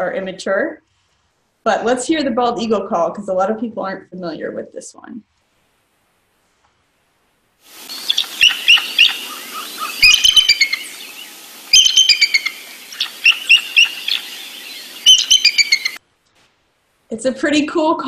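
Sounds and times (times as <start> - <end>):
background hiss: 5.0 - 17.6
eagle high-pitched chittering: 7.9 - 16.0.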